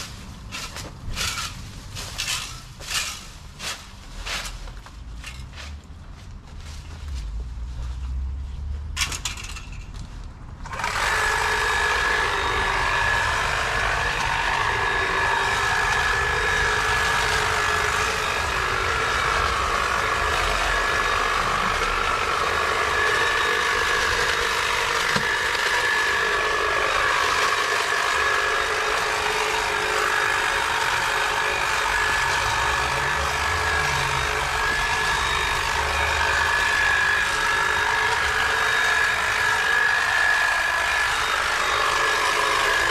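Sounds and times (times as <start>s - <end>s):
power tool motor whine: 10.6s - 42.9s.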